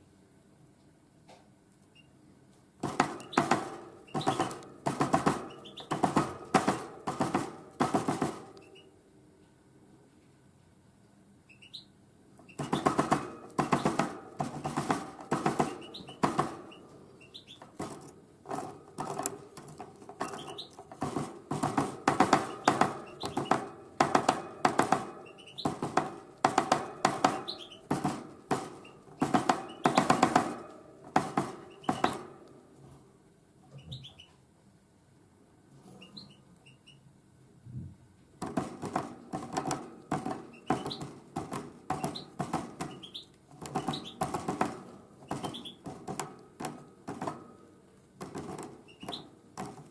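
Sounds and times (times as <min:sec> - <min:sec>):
bird beak tapping seeds: 0:02.8 - 0:08.9, 0:12.4 - 0:32.9, 0:38.4 - 0:49.9
faint high chirps: 0:11.4 - 0:12.9, 0:33.7 - 0:34.4.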